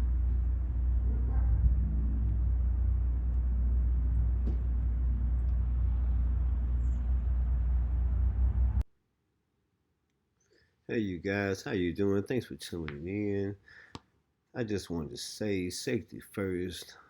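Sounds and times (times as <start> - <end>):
engine rumbling: 0.0 - 8.8.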